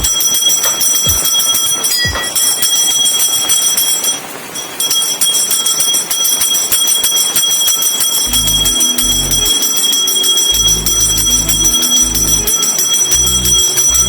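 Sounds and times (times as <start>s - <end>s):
bell-like chiming music: 0.0s - 14.0s
low bass notes: 8.3s - 9.7s, 10.6s - 12.5s, 13.1s - 14.0s.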